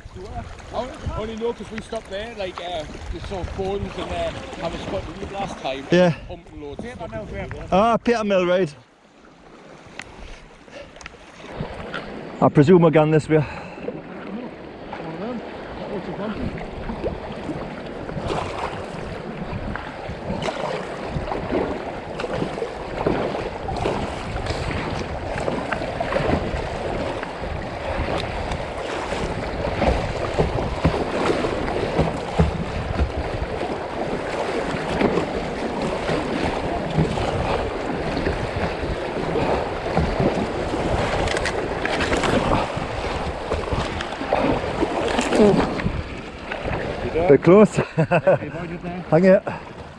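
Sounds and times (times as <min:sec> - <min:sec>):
wind buffeting microphone: 0:00.0 - 0:08.3, 0:13.7 - 0:47.5
water splashes: 0:00.0 - 0:49.9
river water rushing: 0:08.1 - 0:47.6.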